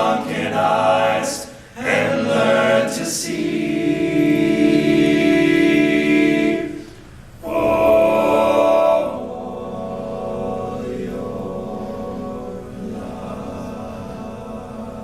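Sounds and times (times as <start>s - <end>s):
male a cappella group singing: 0.0s - 15.0s.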